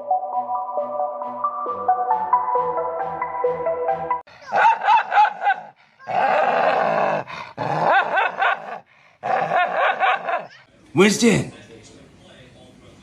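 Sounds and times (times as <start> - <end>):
background music: 0.0 - 4.3
dog barking and yipping: 4.4 - 6.4, 9.4 - 10.6.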